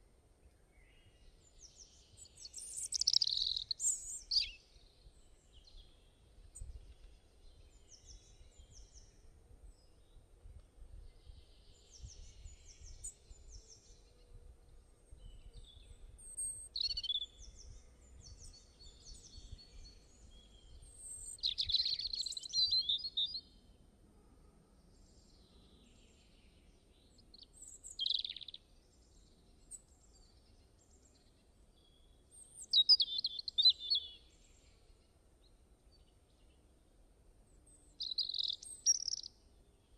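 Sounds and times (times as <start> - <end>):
songbirds chirping and singing: 1.0 - 9.1, 15.1 - 23.5, 25.0 - 35.2, 37.6 - 39.3.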